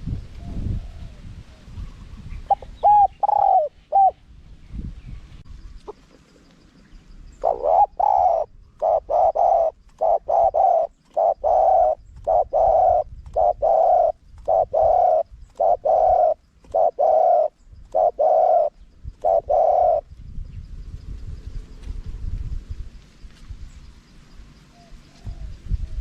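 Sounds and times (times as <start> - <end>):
dove cooing: 0.4 - 4.3, 7.3 - 20.1.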